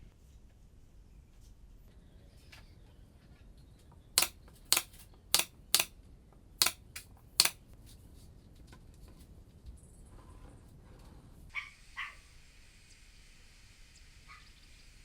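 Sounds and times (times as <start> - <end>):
sharp light clicks: 4.2 - 5.9, 6.6 - 7.6.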